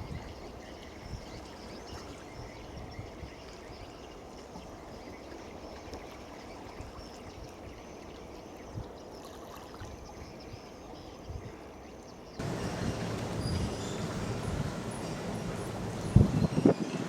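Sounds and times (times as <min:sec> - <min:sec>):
faint high chirps: 0:12.4 - 0:16.8
wash of water or wind noise: 0:12.4 - 0:17.0.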